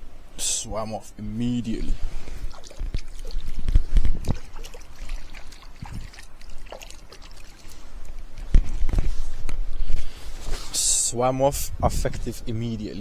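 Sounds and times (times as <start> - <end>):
water trickling and splashing: 1.6 - 9.5.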